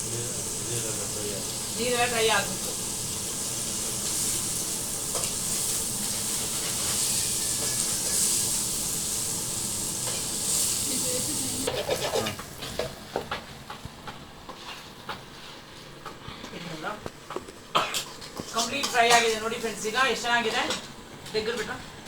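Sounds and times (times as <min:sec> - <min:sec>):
chicken sizzling in a pan: 0:00.0 - 0:16.4
spoon scraping a pan: 0:05.1 - 0:08.6, 0:11.6 - 0:13.0.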